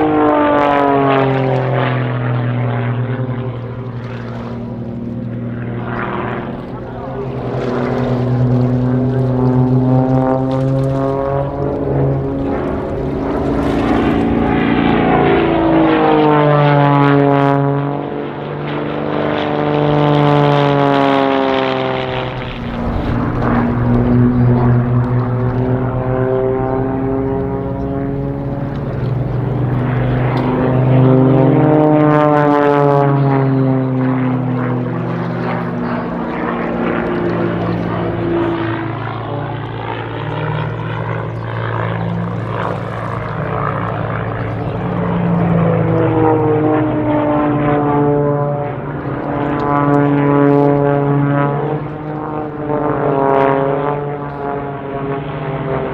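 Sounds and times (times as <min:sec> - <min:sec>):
propeller planes droning past: 0:00.0 - 0:55.9.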